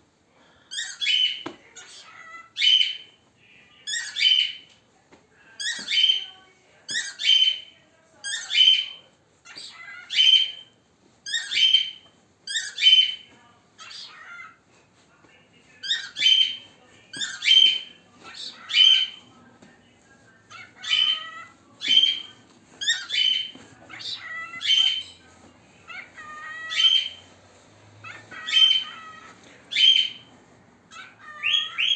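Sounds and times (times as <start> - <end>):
cockatiel shrill squawks: 6.9 - 8.9, 9.5 - 13.2, 13.8 - 14.6, 15.8 - 16.6, 17.2 - 19.2, 20.5 - 25.2, 25.9 - 27.2, 28.0 - 30.3, 30.9 - 31.9.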